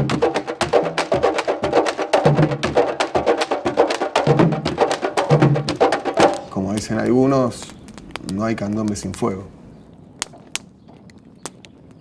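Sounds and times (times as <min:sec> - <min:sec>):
stick strokes on drum shells: 0:03.8 - 0:10.6
deep pitched drum tones: 0:04.3 - 0:08.9.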